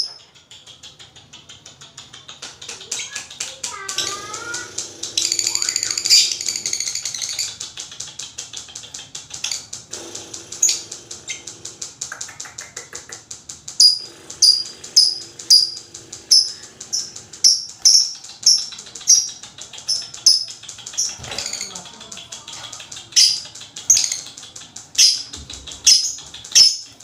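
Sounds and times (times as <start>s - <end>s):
lovebird trilling: 2.9s - 7.6s, 9.4s - 13.0s, 13.8s - 27.0s
shrill bird chirps: 4.0s - 7.6s.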